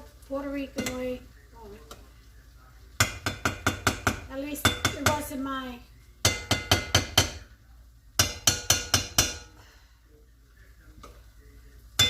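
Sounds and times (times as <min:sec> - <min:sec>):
utensil knocking on metal pot: 0:00.8 - 0:01.0, 0:03.0 - 0:05.3, 0:06.2 - 0:07.5, 0:08.2 - 0:09.5.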